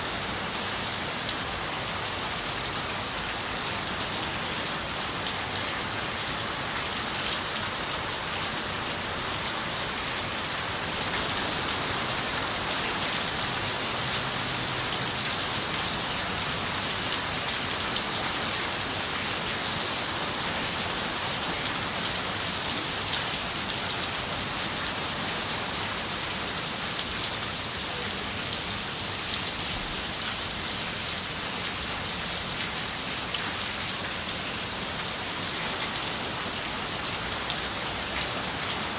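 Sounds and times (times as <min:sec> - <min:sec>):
rain falling on a window: 0:24.5 - 0:38.9.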